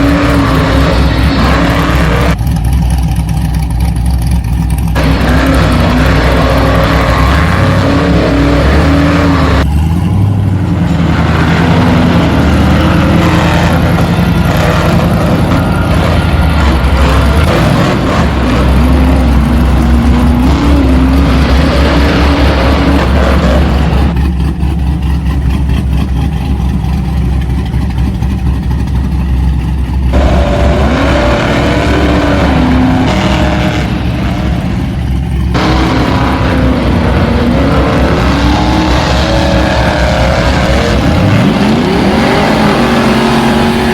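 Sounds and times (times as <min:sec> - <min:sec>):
vehicle motor revving: 0:00.0 - 0:43.9.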